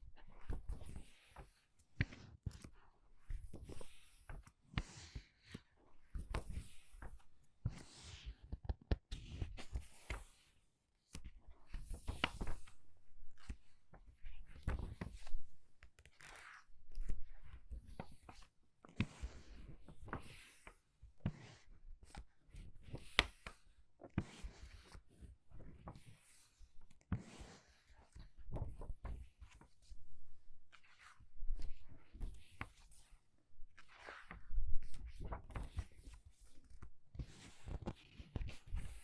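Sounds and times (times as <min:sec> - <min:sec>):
book pages turning: 0:16.0 - 0:17.2.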